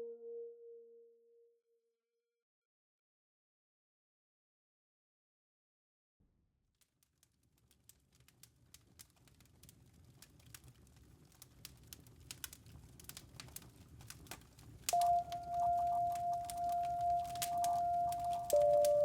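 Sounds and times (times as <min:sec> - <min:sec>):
campfire crackling: 0:07.6 - 0:19.0.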